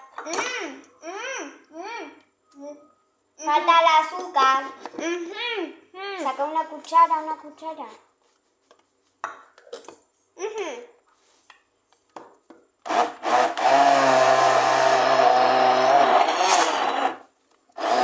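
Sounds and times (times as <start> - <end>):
electric blender running: 12.8 - 17.2, 17.8 - 18.0.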